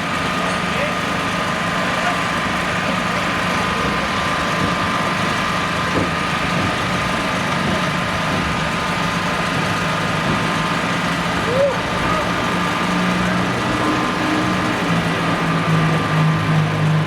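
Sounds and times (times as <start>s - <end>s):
heavy engine idling: 0.0s - 17.0s.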